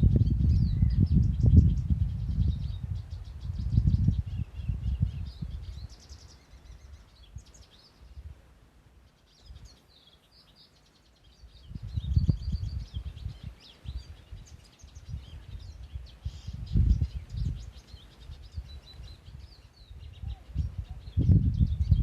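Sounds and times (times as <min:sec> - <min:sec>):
gusty low rumble: 0:00.0 - 0:06.0, 0:11.6 - 0:17.8, 0:18.5 - 0:22.0
small birds chirping: 0:00.0 - 0:22.0.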